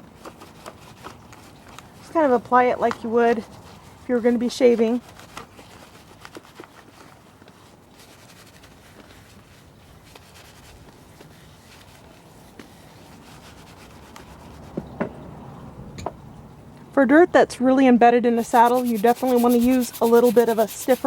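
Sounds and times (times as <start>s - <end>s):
brush scrubbing leather: 3.4s - 7.0s, 8.0s - 14.8s, 18.4s - 21.0s.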